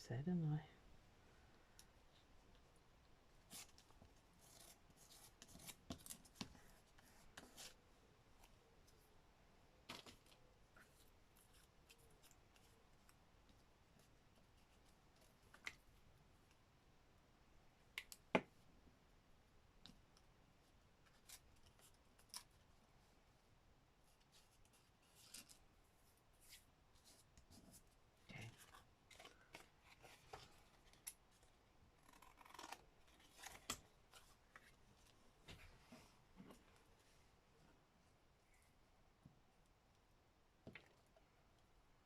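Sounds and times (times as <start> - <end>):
scissors snipping paper: 32.0 - 33.8.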